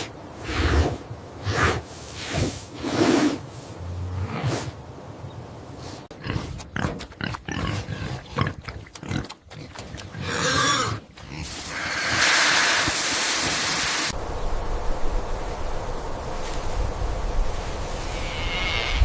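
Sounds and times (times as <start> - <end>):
pig grunting: 6.1 - 12.2.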